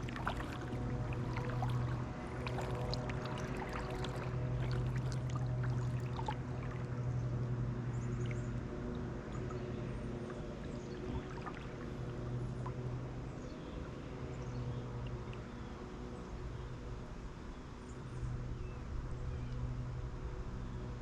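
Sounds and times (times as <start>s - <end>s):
water dripping and trickling: 0.0s - 7.0s, 8.0s - 12.9s
light water splashes: 0.0s - 16.9s
steady low hum: 0.0s - 21.0s.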